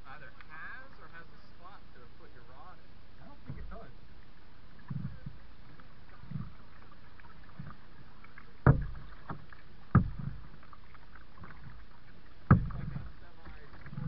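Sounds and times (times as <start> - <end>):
kayak paddle strokes: 3.2 - 14.0
sharp water splashes: 5.8 - 14.0.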